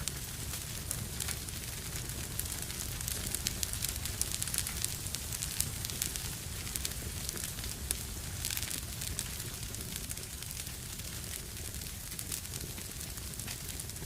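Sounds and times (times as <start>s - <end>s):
fire crackling and popping: 0.0s - 14.0s
low rumble of flames: 0.0s - 14.0s.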